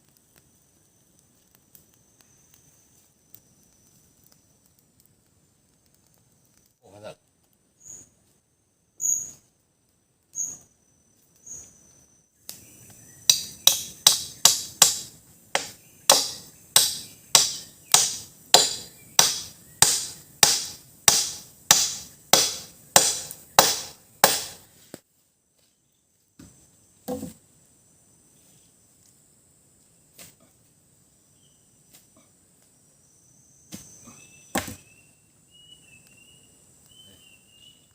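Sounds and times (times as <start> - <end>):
machete chopping wood: 13.3 - 24.6, 34.5 - 34.8.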